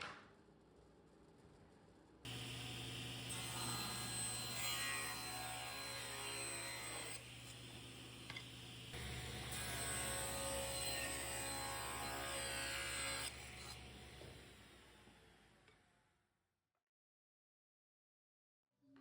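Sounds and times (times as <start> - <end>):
power tool motor humming: 2.3 - 15.0.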